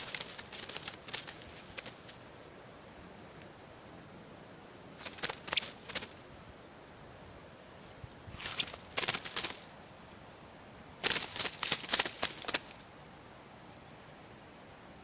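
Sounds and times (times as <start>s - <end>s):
netting rustling: 0.0s - 2.2s, 5.0s - 6.2s, 8.3s - 9.7s, 11.0s - 12.8s.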